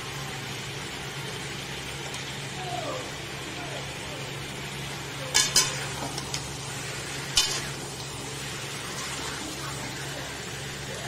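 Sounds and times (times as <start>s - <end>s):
meat sizzling in a wok: 0.0s - 11.0s
metal spatula clinking on pan: 5.3s - 6.3s, 7.4s - 7.7s.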